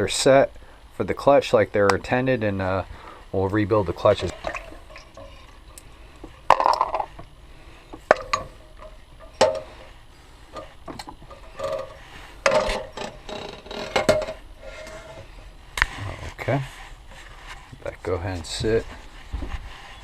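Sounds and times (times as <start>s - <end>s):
small parts and tools clattering: 4.2s - 7.3s, 7.9s - 15.1s.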